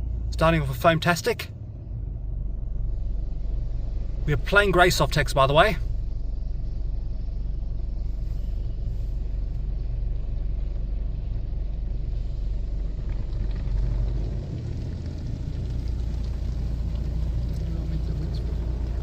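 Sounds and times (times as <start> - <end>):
low rumble inside car wash: 0.0 - 19.0.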